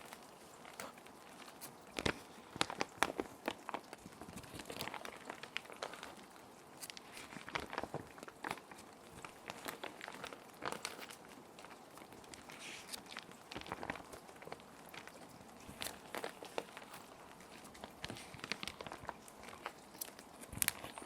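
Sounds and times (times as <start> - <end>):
plastic sheets crinkling: 0.0 - 21.0.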